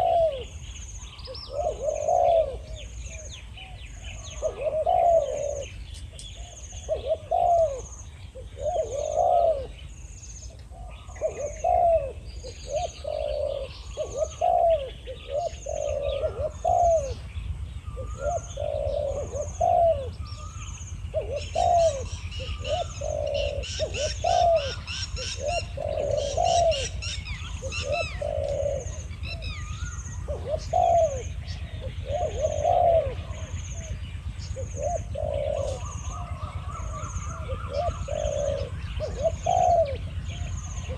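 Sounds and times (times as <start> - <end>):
doves cooing: 0.0 - 40.9
small birds chirping: 0.0 - 40.9.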